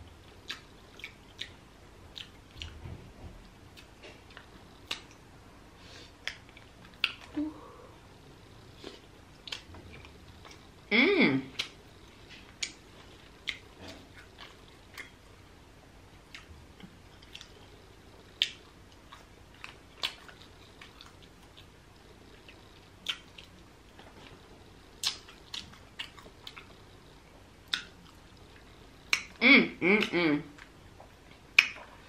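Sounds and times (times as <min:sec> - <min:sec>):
chewing mouth sounds: 0:00.3 - 0:02.8, 0:08.7 - 0:10.7, 0:16.2 - 0:27.0.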